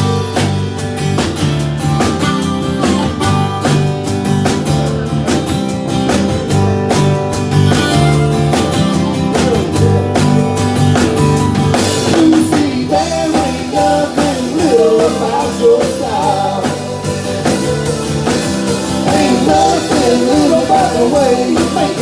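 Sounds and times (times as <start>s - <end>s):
country-rock band playing: 0.0s - 22.0s.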